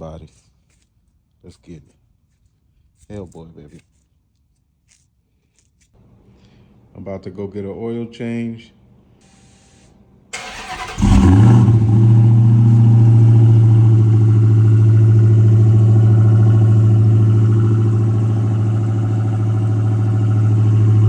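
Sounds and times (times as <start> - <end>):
starter motor cranking: 10.4 - 12.2
engine idling loudly: 10.4 - 21.0
engine revving: 10.4 - 21.0.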